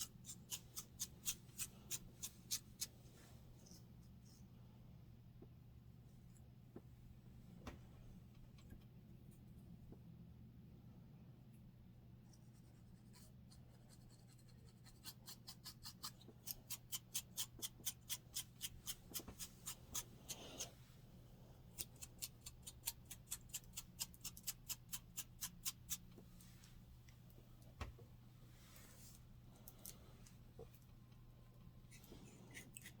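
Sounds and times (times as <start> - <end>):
fingers scratching scalp: 0.0 - 2.9.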